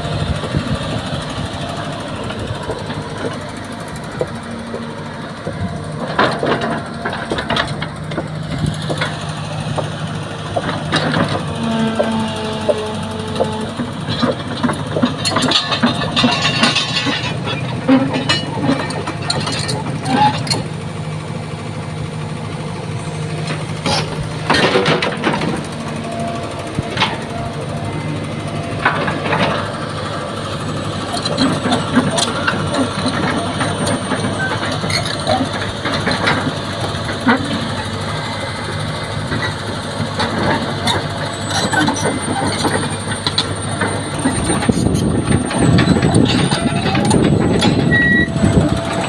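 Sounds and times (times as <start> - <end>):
diesel engine running: 0.0 - 49.0
metallic knocks and clanks: 10.5 - 20.7, 23.4 - 27.8, 40.2 - 49.0.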